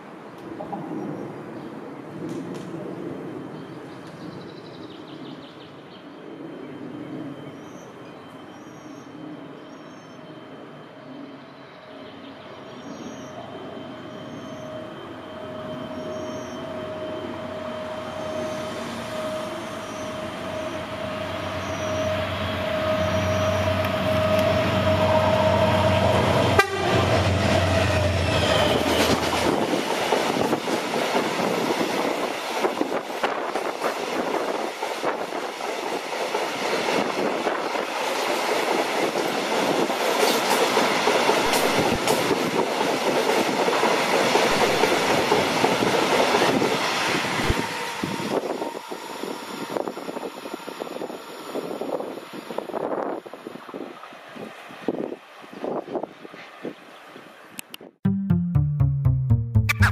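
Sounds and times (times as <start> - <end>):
train approaching with high tone: 3.3 - 57.4
train wheels clattering on rails: 28.3 - 47.8.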